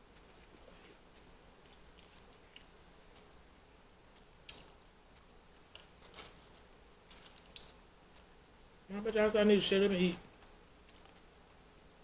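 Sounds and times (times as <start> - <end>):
quiet chewing clicks: 0.1 - 3.4, 4.1 - 8.3, 10.3 - 11.3.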